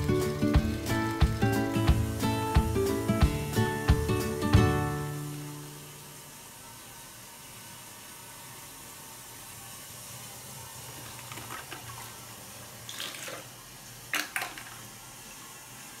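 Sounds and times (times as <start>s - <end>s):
toilet water running into bowl: 10.8s - 16.0s
plastic eggs splashing and knocking: 11.0s - 12.2s, 14.1s - 14.8s.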